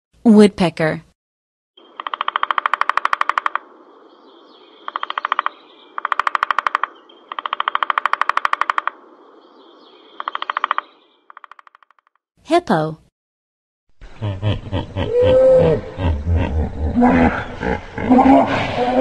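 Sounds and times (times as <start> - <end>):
woodpecker drumming on wood: 1.8 - 3.8, 4.8 - 9.1, 10.0 - 12.2.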